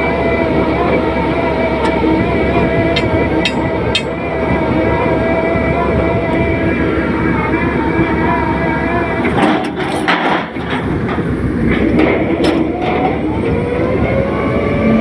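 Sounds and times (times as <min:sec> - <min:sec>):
heavy machinery engine running: 0:00.0 - 0:15.0
sharp metallic knocks: 0:03.0 - 0:04.3.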